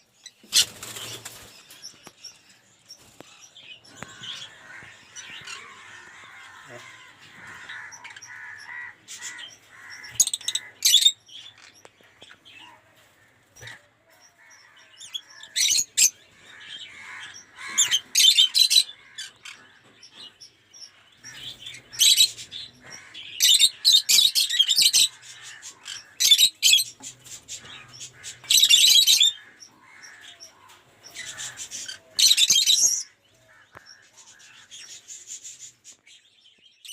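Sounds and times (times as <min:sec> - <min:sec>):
parrots shrieking: 0:04.0 - 0:11.2.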